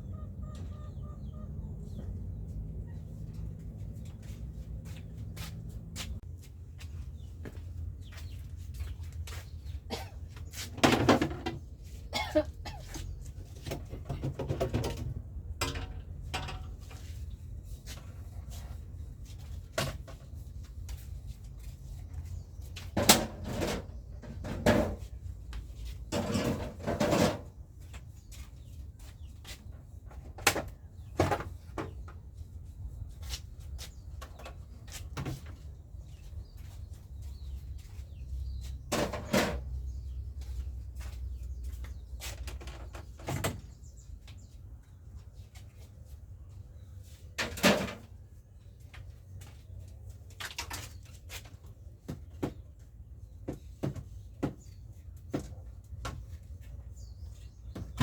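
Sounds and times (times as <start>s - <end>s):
containers knocking and clattering: 13.6s - 16.9s.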